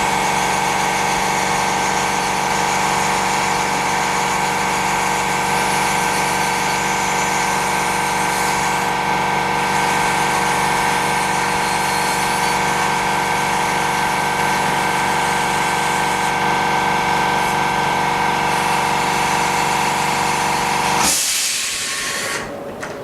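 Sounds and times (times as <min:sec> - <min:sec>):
small electric motor whine: 0:09.6 - 0:12.8
short hiss: 0:21.0 - 0:22.5.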